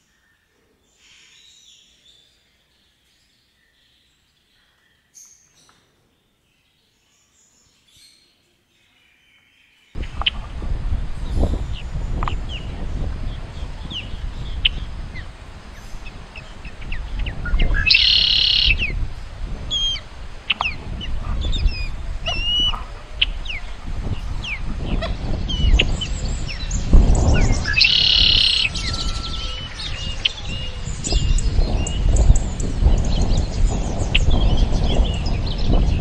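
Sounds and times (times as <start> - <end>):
wild birds chirping: 8.8 - 36.0
drawn-out bird calls: 10.0 - 33.5
low rumbling noise: 10.0 - 36.0.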